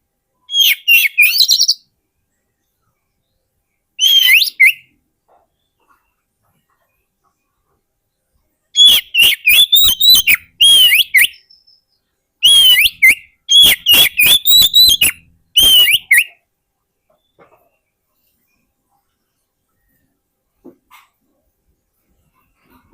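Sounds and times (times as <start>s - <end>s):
bird whistling and chattering song: 0.4s - 1.9s, 4.0s - 5.0s, 8.8s - 16.4s.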